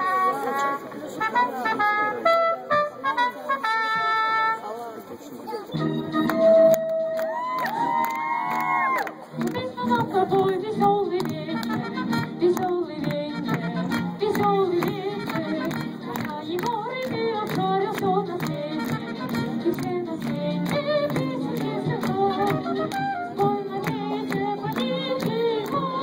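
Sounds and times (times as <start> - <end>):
instrumental accompaniment with beat: 9.3 - 26.0
child singing: 19.6 - 26.0.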